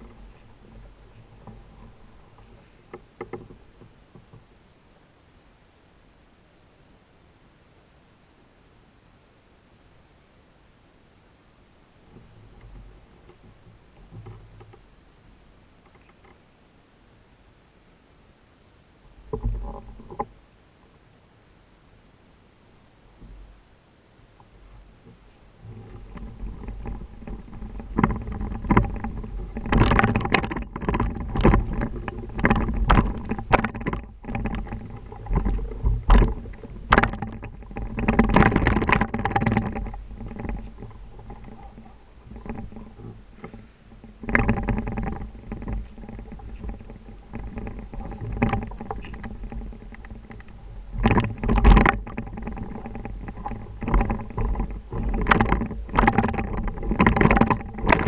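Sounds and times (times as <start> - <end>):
bike knocking and rattling: 25.1 - 58.0
wind buffeting microphone: 25.5 - 58.0.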